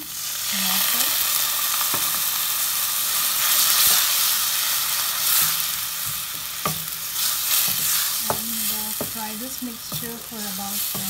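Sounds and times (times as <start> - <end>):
masala sizzling in hot oil: 0.0 - 11.0
spatula knocking against pan: 7.6 - 10.2, 10.8 - 11.0.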